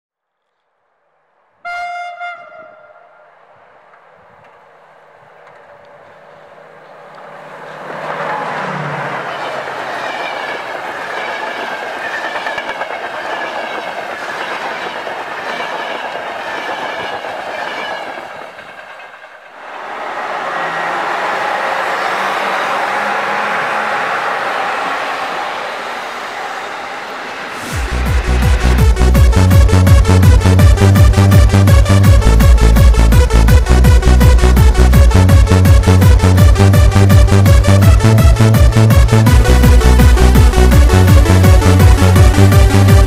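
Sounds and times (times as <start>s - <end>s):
passing train rushing: 0.9s - 43.0s
train horn blast: 1.6s - 3.4s, 19.6s - 31.6s.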